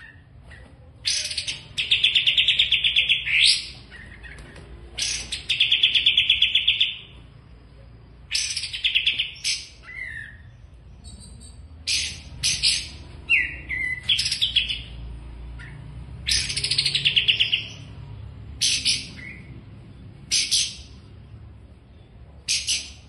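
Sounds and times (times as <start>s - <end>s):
songbird trilling: 1.0s - 4.4s, 5.0s - 7.2s, 8.3s - 15.0s, 15.6s - 17.9s.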